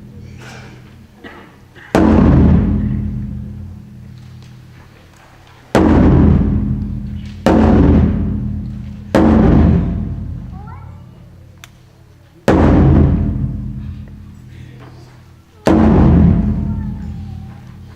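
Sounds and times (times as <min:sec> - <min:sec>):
taiko drum struck hard: 0:01.8 - 0:04.0, 0:05.7 - 0:10.7, 0:12.5 - 0:14.2, 0:15.6 - 0:17.6.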